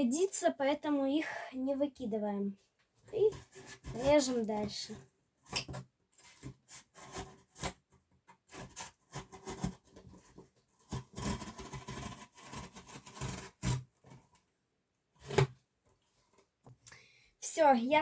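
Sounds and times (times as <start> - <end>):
cardboard scraping and rasping: 3.1 - 14.4, 15.2 - 15.6.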